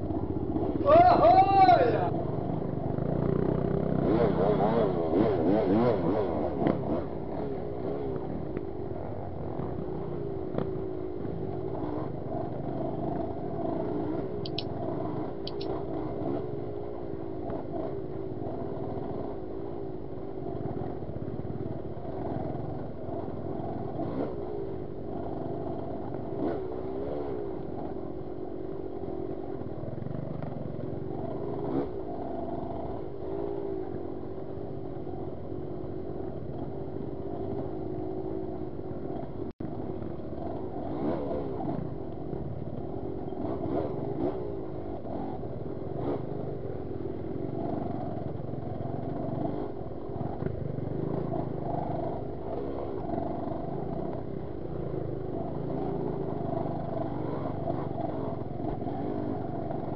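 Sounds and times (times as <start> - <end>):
dirt bike engine revving: 0.0 - 17.0, 22.1 - 27.9, 40.4 - 42.0, 43.0 - 59.9.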